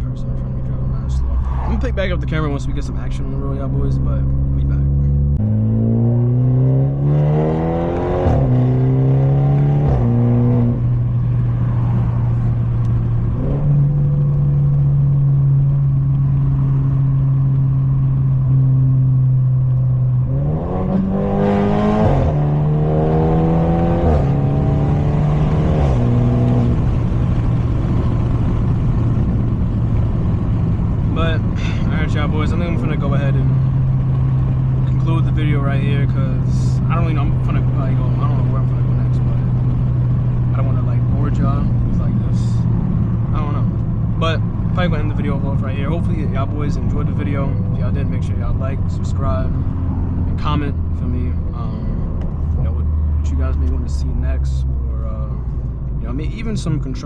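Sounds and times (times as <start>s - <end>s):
car exhaust accelerating: 0.0s - 57.0s
exhaust cruising drone: 0.0s - 57.0s.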